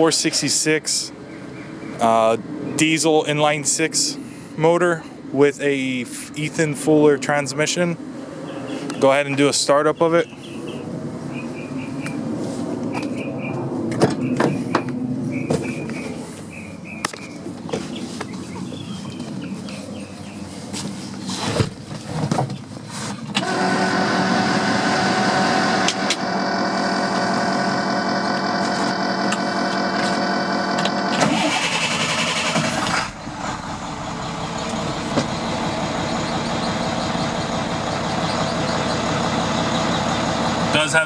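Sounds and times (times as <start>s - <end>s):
diesel truck engine idling: 23.4s - 41.0s
diesel engine knocks: 32.6s - 40.8s.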